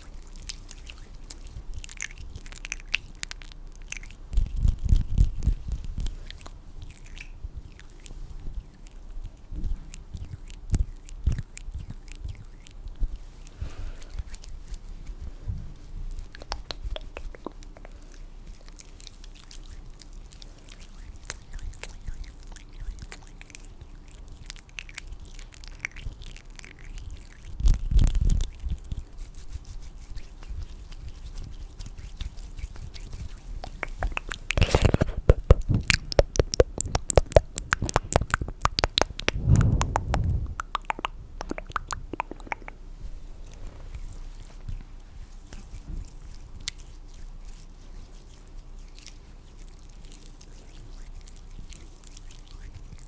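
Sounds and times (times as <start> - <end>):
low thud: 39.3 - 40.8.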